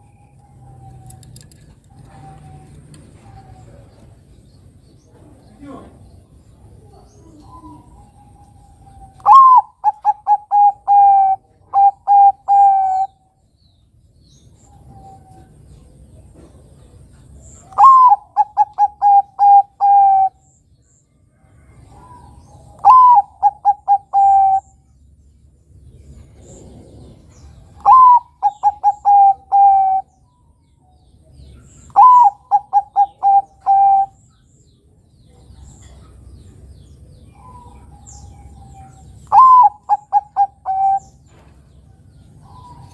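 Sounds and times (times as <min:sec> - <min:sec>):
dove cooing: 0:00.4 - 0:04.2, 0:06.7 - 0:13.2, 0:17.6 - 0:20.4, 0:21.7 - 0:24.8, 0:26.2 - 0:30.2, 0:31.9 - 0:34.2, 0:37.3 - 0:41.4.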